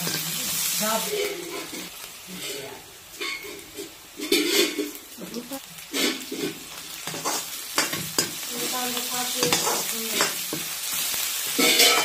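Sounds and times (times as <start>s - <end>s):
onions sizzling in hot oil: 0.0s - 12.0s
metal ladle scraping pan: 1.0s - 5.0s, 11.5s - 12.0s.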